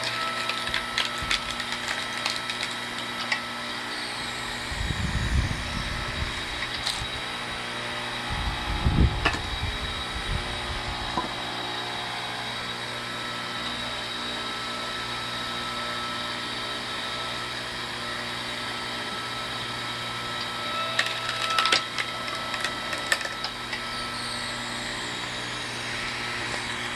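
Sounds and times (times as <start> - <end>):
wood cracking and splintering: 0.0 - 3.4
log splitter motor running: 0.0 - 26.9.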